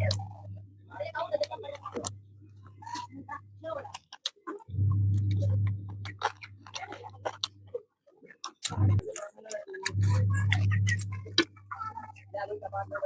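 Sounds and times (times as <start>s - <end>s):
low hum: 0.0s - 3.9s, 4.7s - 7.7s, 8.7s - 9.1s, 9.8s - 13.0s
person chewing with wet smacks: 3.8s - 11.6s.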